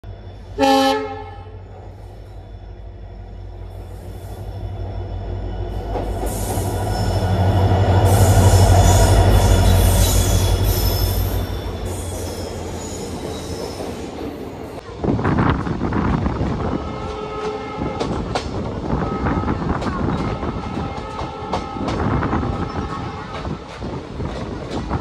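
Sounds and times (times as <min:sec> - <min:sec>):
train rumbling: 0:00.0 - 0:25.0
train horn blast: 0:00.6 - 0:01.6, 0:16.7 - 0:18.2, 0:18.9 - 0:23.5
wheels squealing: 0:01.6 - 0:14.7.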